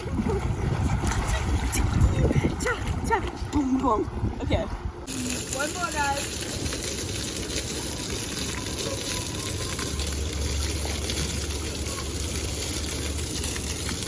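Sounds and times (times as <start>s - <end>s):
running splashing water: 5.0s - 14.0s.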